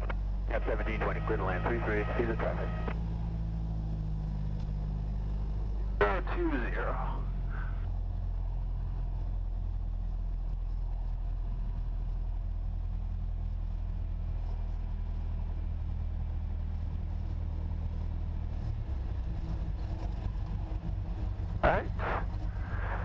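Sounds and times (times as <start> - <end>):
light aircraft engine drone: 0.0 - 23.0.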